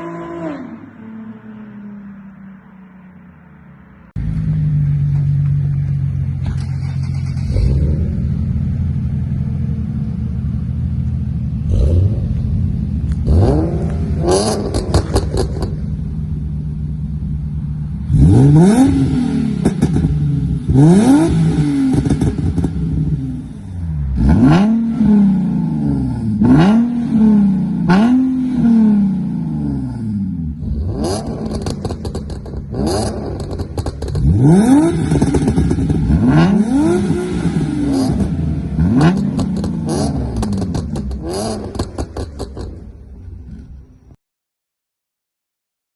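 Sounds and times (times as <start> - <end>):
car engine idling and revving: 0.0 - 44.2
exhaust pops and crackles: 13.0 - 15.9, 31.3 - 36.2, 39.0 - 43.7.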